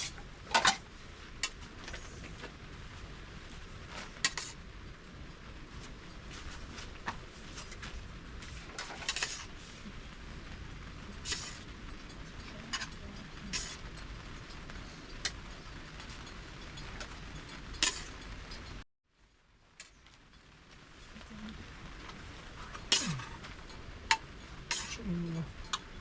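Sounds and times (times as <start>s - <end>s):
low background noise: 0.0s - 26.0s
metal utensil clinking on dishes: 17.8s - 18.6s, 24.1s - 25.8s.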